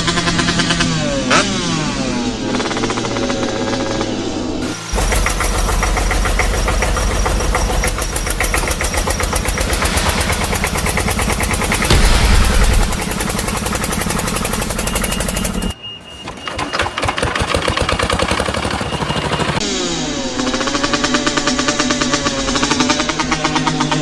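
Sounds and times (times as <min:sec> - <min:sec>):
vehicle engine running: 0:02.1 - 0:15.7.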